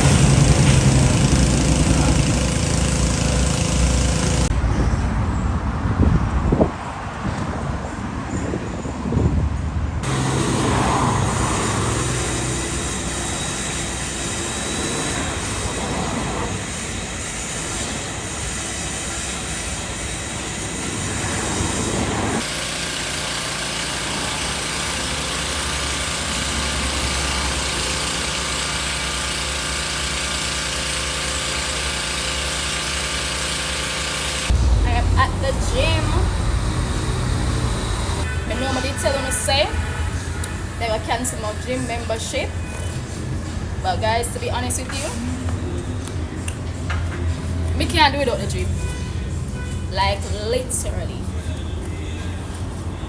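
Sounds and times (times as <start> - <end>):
car engine: 0.0 - 4.6, 10.0 - 12.9, 22.2 - 38.4
road noise: 0.0 - 30.4, 33.0 - 53.0.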